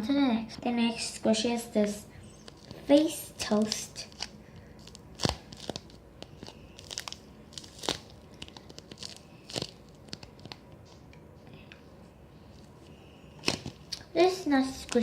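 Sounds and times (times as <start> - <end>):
squishy toy crinkling rustles: 2.2 - 10.6.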